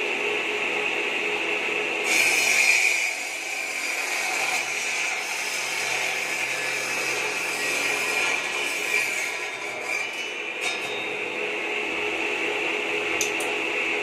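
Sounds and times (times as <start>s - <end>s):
saw blade cutting wood: 2.0s - 11.1s
circular saw whining: 2.0s - 14.0s.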